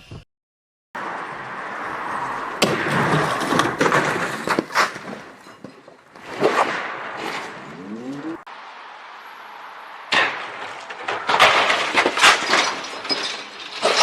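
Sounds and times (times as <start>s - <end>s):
car crash bangs and crunching: 2.6s - 7.7s, 10.1s - 14.0s.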